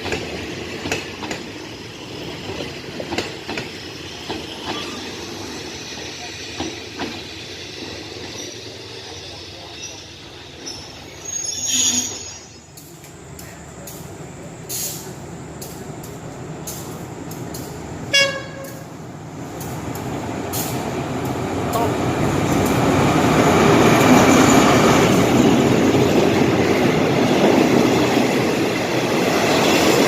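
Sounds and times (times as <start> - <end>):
train rumbling on track: 0.0 - 30.0
train horn toot: 18.1 - 18.8.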